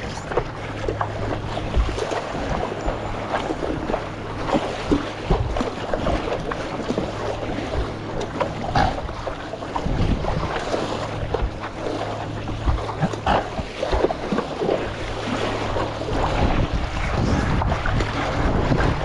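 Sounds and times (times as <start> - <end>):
sharp water slaps: 0.0 - 19.0
water splashing and sloshing: 0.0 - 19.0
wind buffeting microphone: 0.0 - 19.0.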